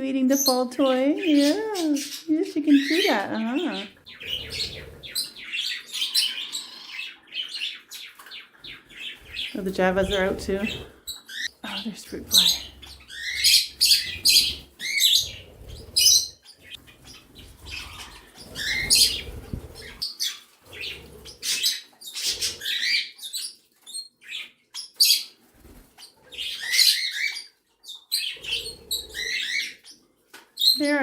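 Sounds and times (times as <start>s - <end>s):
birds chirping and chattering: 0.0s - 31.0s.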